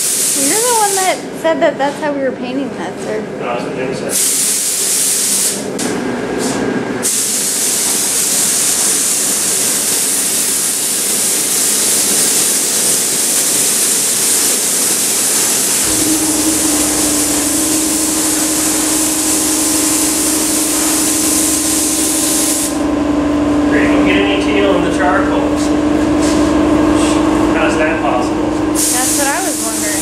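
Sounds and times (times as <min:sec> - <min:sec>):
paint spray gun hissing: 0:00.0 - 0:01.0, 0:04.1 - 0:05.7, 0:07.0 - 0:22.8, 0:28.8 - 0:30.0
low motor hum: 0:15.8 - 0:28.8.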